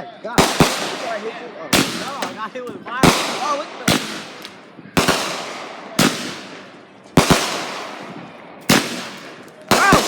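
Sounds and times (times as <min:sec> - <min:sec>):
fireworks bangs with echo: 0:00.4 - 0:10.0.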